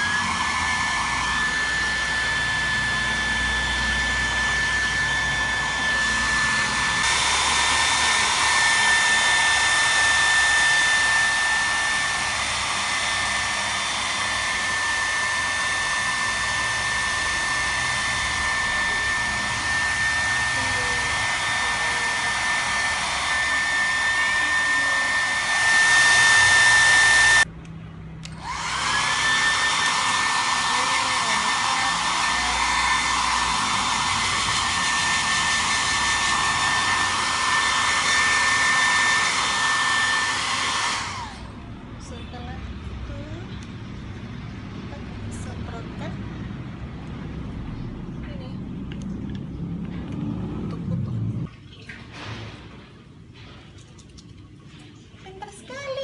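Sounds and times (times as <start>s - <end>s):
hair dryer blowing: 0.0s - 27.5s, 28.2s - 41.7s.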